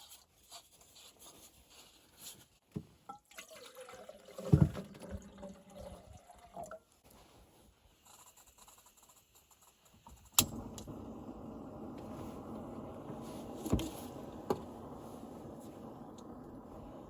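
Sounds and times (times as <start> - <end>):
appliance running hum: 10.4 - 17.0.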